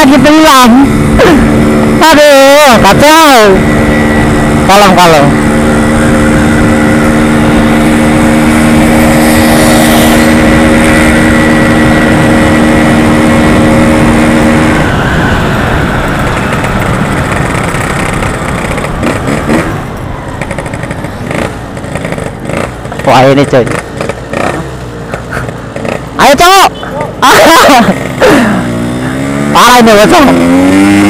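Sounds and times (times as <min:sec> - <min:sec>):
road noise: 0:00.0 - 0:31.0
two-stroke motorcycle engine: 0:00.0 - 0:31.0.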